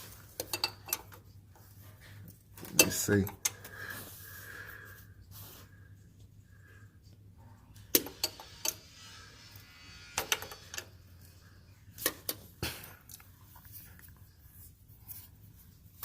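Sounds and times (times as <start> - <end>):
hand tools clinking on metal: 0.3 - 1.2, 2.6 - 3.6.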